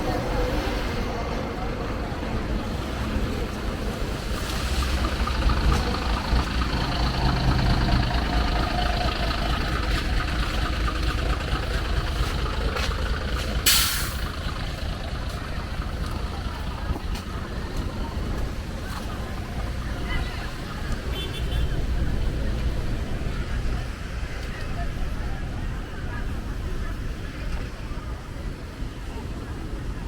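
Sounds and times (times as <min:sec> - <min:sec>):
heavy vehicle engine rumbling: 0:00.0 - 0:30.0
sharp hiss of air: 0:13.6 - 0:14.3.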